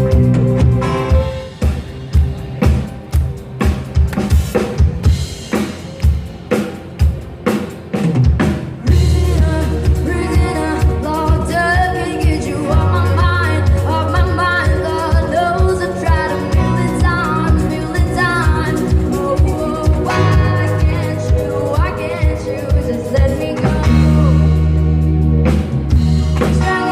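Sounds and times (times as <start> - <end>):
live band playing: 0.0 - 26.9
person singing: 8.8 - 24.6, 26.4 - 26.9.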